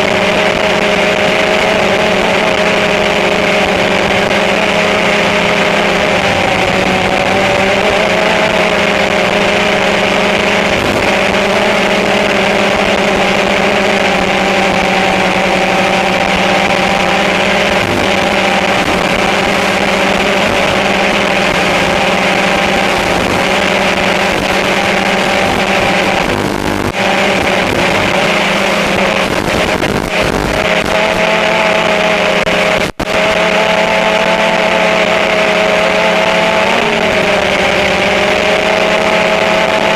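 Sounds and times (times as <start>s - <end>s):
model aircraft motors humming: 0.0s - 39.9s.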